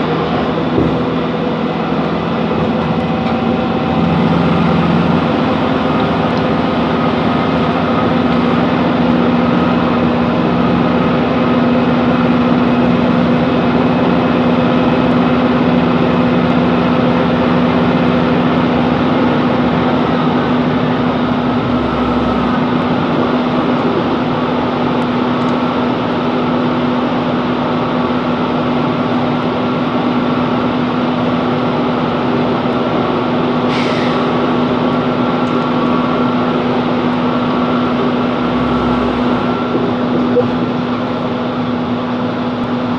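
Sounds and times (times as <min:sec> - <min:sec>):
diesel train running: 0:00.0 - 0:42.9.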